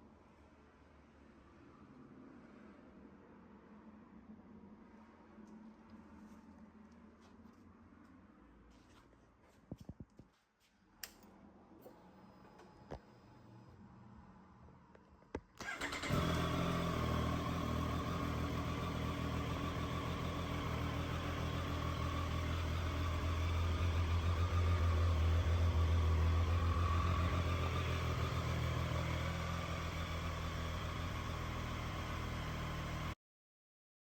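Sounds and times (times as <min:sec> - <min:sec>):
motorcycle engine idling: 0:15.6 - 0:33.2.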